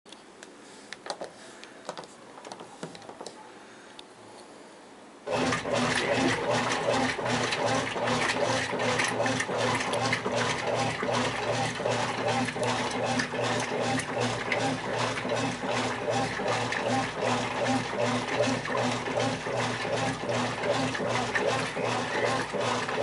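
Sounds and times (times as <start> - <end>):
washing machine agitating: 5.3 - 23.0
water and towels churning: 5.3 - 23.0.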